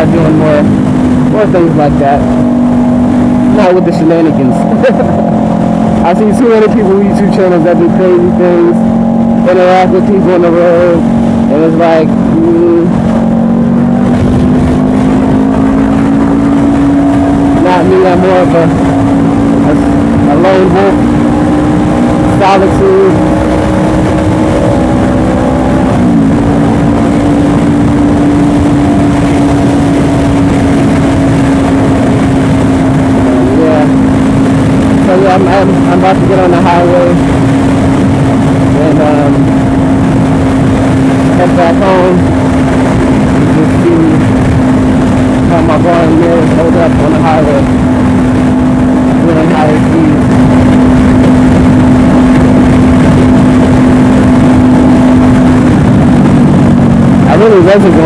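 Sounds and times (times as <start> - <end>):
motorcycle engine cruising: 0.0 - 58.0
wind rush on microphone: 0.0 - 58.0.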